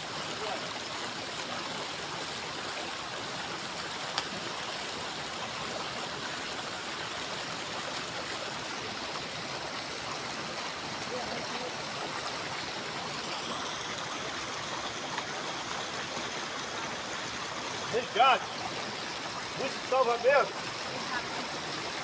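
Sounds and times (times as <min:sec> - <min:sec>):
waterfall rushing: 0:14.2 - 0:22.0.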